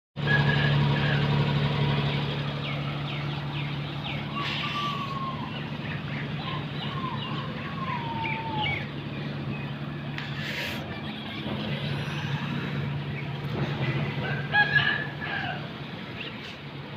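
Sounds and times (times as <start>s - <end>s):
steady low hum: 0.9s - 16.9s
gliding whistling tone: 4.0s - 9.0s.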